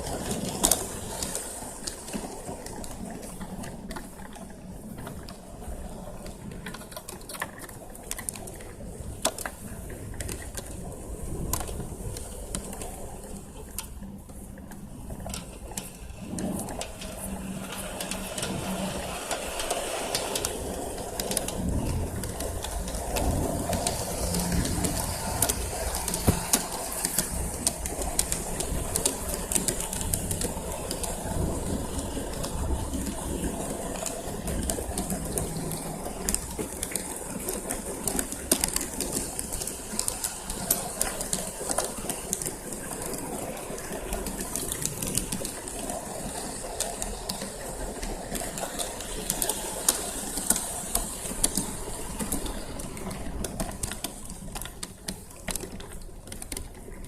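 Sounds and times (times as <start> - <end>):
wheels clicking on track: 0.0 - 57.0
model train motor hum: 15.2 - 54.9.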